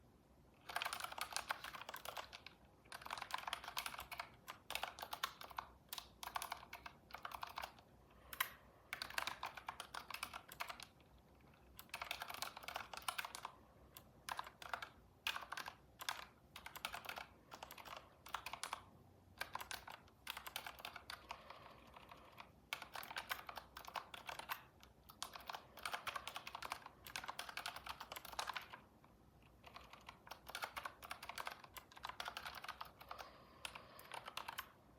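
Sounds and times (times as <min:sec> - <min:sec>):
keyboard typing: 0:00.6 - 0:34.9.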